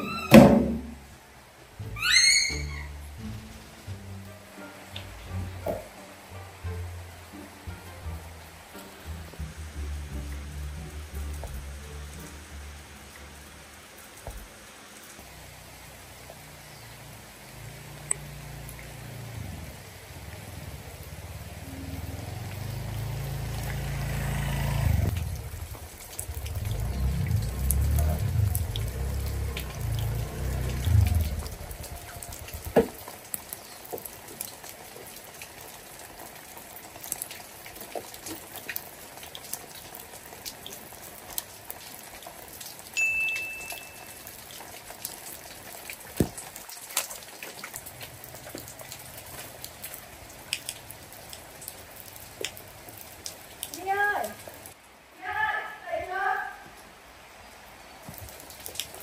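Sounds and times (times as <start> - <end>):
rain pattering: 0.0 - 59.0
drips and ticks: 1.8 - 54.8, 57.6 - 59.0
scooter engine running: 20.2 - 31.9
short high beep: 43.0 - 44.2.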